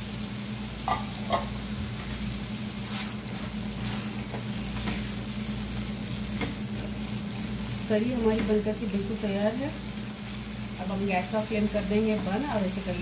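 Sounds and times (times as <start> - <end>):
curry sizzling and bubbling: 0.0 - 13.0
steady low hum: 0.0 - 13.0
spatula stirring in pan: 2.7 - 7.6.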